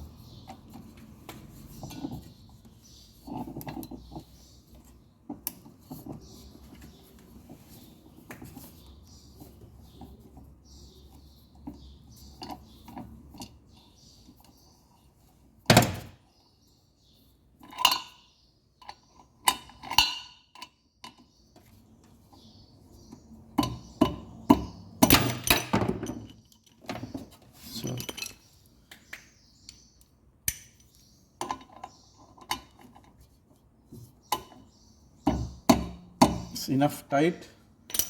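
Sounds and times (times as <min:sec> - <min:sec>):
metal tools knocking and clinking: 0:18.8 - 0:21.3, 0:23.6 - 0:28.5.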